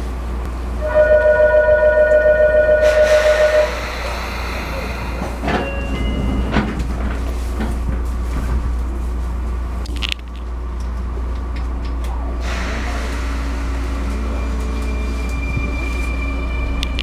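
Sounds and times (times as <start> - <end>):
train interior low hum: 0.0 - 17.0
steady high tone: 0.8 - 6.4
air hiss: 2.8 - 5.4, 12.4 - 14.6.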